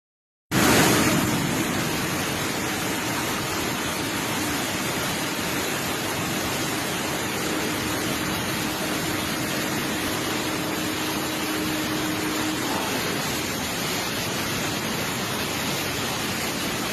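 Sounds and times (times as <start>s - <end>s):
water rushing and roaring: 0.5s - 16.9s
faint steady hum: 0.6s - 16.2s.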